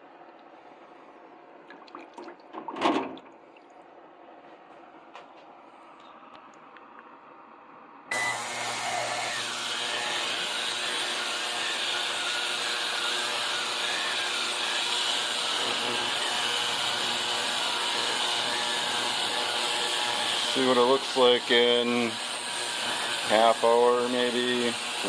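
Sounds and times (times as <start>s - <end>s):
ultrasonic cleaner hiss and hum: 7.4s - 14.2s.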